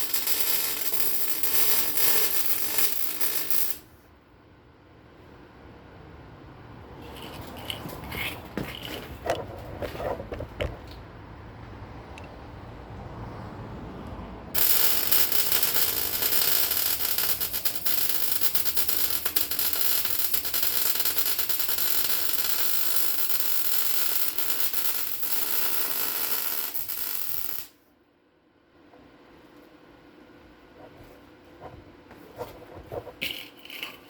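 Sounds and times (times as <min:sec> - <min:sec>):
welder crackling: 0:00.0 - 0:03.9, 0:14.6 - 0:27.8.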